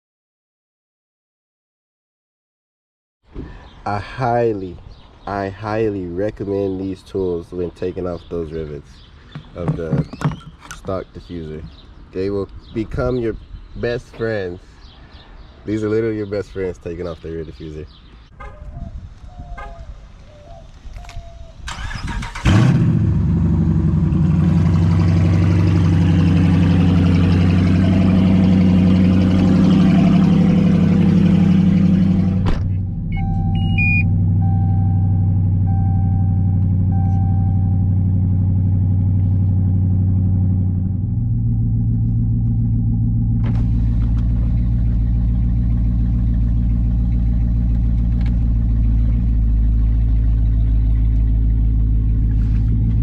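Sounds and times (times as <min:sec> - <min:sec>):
car engine cranking and idling: 0:21.0 - 0:53.0
dashboard chime beeping: 0:33.1 - 0:37.8.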